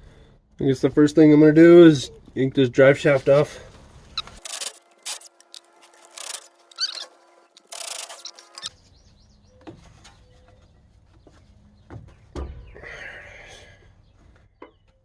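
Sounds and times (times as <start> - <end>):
short rasping bursts: 4.2 - 8.7.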